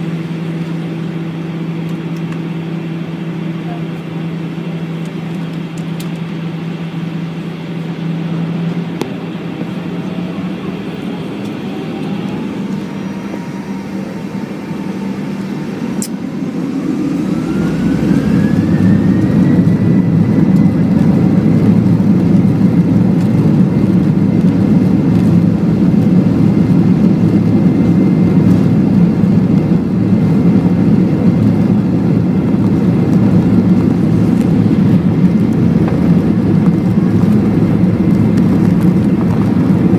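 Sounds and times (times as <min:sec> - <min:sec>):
jet engine rumble: 0:00.0 - 0:39.9
jet engine whine: 0:00.0 - 0:39.9.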